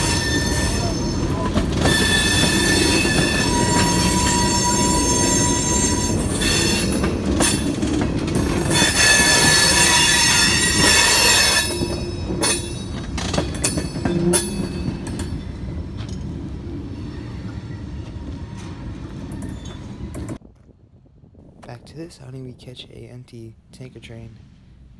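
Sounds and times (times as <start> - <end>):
train wheels squealing on rail: 0.0 - 7.8, 8.4 - 20.4
train rolling noise: 0.0 - 24.9
clanks and clicks: 11.8 - 15.4.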